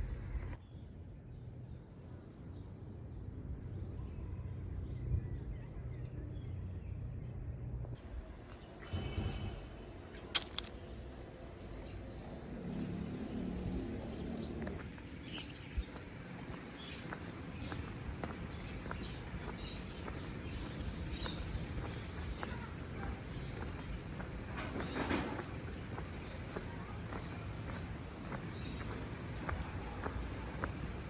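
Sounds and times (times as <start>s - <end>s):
engine hum: 0.0s - 8.1s, 8.7s - 31.0s
traffic rumble: 0.0s - 31.0s
bird chirps: 14.4s - 31.0s.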